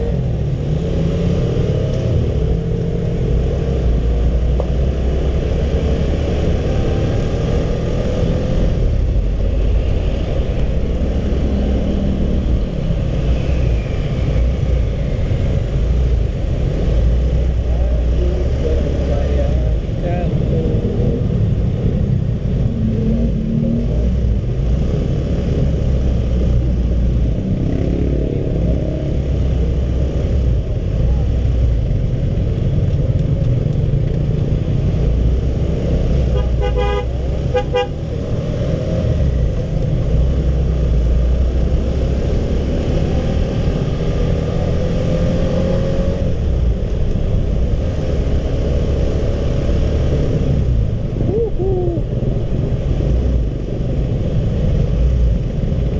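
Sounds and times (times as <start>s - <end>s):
motorcycle road and engine noise: 0.0s - 55.9s
vehicle horn toots: 36.4s - 38.0s.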